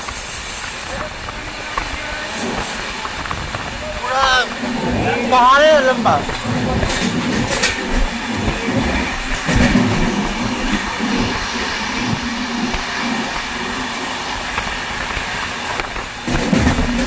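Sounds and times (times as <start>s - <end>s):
train rumbling along track: 0.0s - 17.0s
low knocks from wheels: 6.2s - 13.7s, 14.5s - 17.0s.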